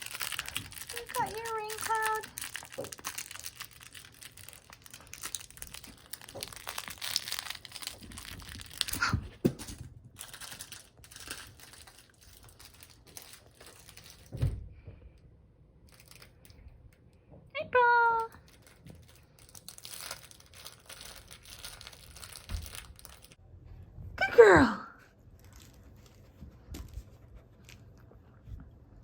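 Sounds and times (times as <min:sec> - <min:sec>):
crinkling plush toy being chewed: 0:00.0 - 0:14.4, 0:15.8 - 0:16.7, 0:18.2 - 0:23.4.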